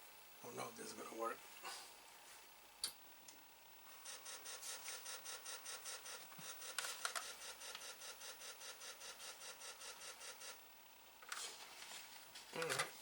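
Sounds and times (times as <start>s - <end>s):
floppy disk drive rasping: 4.0s - 10.6s.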